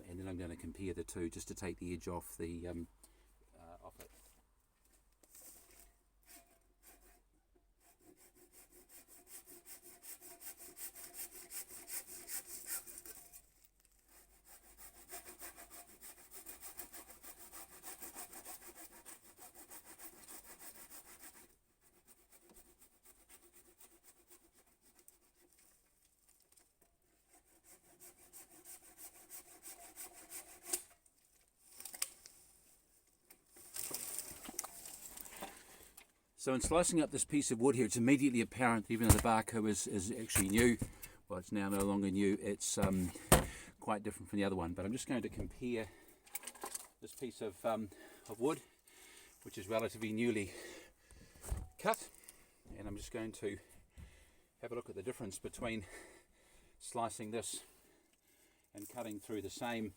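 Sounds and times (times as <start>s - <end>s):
handsaw cutting wood: 7.8s - 13.4s, 14.1s - 25.7s, 27.2s - 30.9s.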